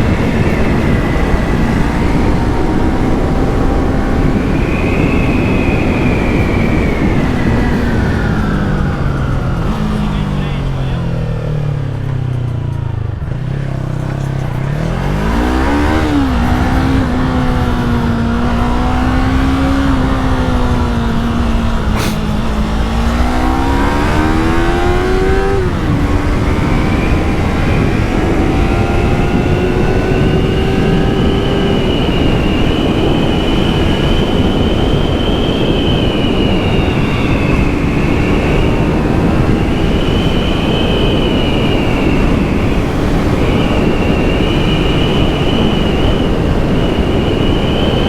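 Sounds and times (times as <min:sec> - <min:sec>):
motorcycle engine accelerating: 0:00.0 - 0:48.0
wind and road rush: 0:00.0 - 0:48.0.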